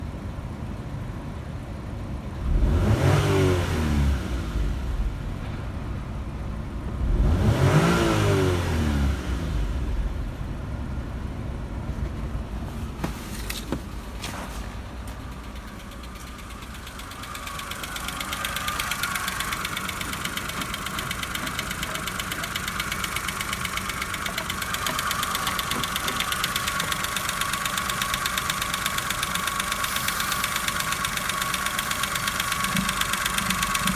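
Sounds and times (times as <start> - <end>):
car engine revving and idling: 1.8 - 33.9
fast regular ticking: 15.2 - 33.9.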